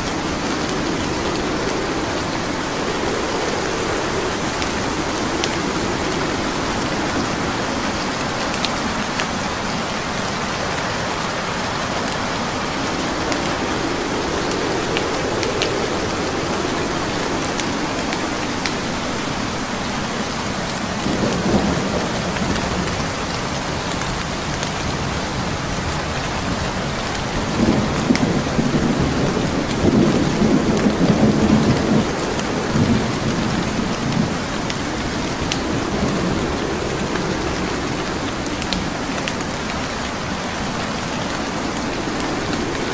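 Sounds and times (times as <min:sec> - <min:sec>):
wood fire crackling: 0:00.0 - 0:24.5, 0:29.6 - 0:42.9
steady rain: 0:00.0 - 0:42.9
thunder rumbling: 0:00.0 - 0:42.9.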